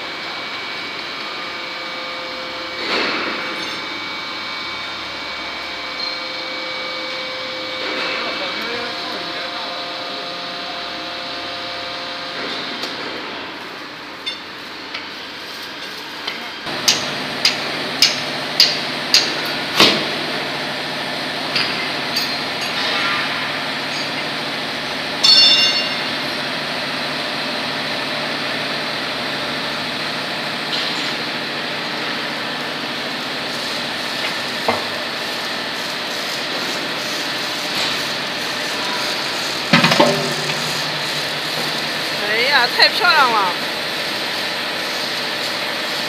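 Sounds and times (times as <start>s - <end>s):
hydraulic press hum: 16.7s - 46.0s.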